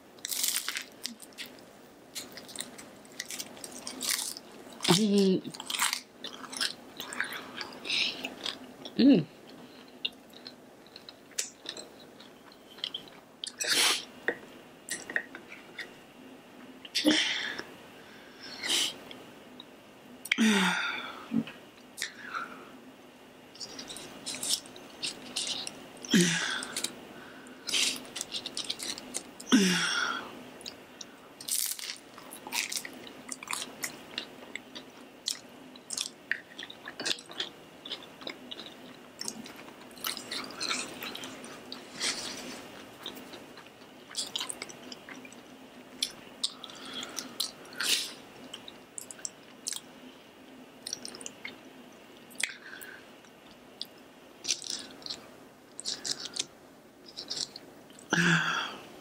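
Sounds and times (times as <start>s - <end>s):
crisp crunching and chewing: 0.2s - 8.7s, 23.6s - 25.8s, 27.6s - 29.4s, 30.6s - 47.6s, 53.8s - 56.5s, 57.1s - 58.1s.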